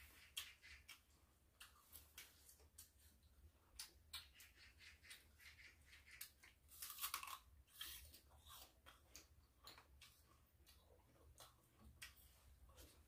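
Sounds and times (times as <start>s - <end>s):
crunching and chewing raw fruit: 6.6s - 13.0s.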